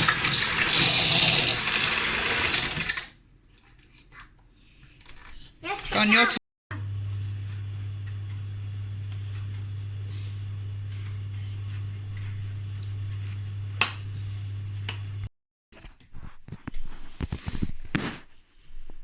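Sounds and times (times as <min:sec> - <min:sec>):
steady low hum: 0:06.7 - 0:15.3.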